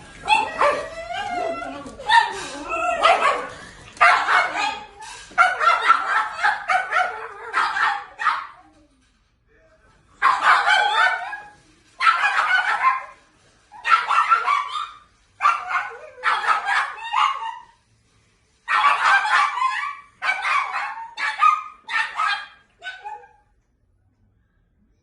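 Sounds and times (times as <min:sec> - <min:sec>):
dogs howling: 0:00.2 - 0:08.7.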